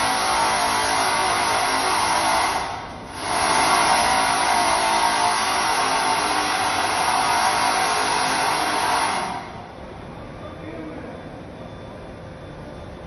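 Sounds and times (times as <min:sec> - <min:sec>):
steady mechanical running noise: 0:00.0 - 0:13.0.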